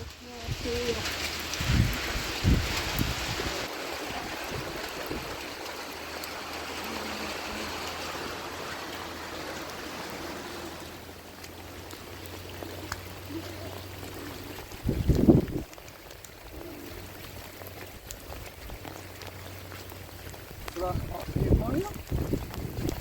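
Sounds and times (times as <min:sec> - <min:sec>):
running water rushing: 0:00.0 - 0:23.0.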